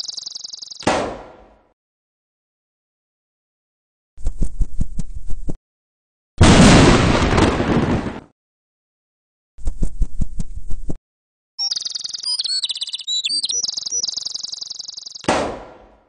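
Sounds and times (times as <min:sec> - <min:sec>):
birds chirping and tweeting: 0:00.0 - 0:00.8, 0:11.6 - 0:15.3.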